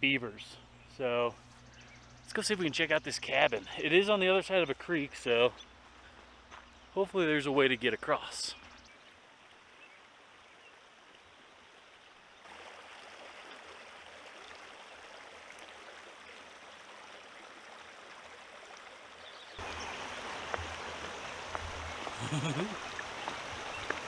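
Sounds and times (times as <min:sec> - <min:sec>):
mountain creek rushing: 0:12.5 - 0:24.0.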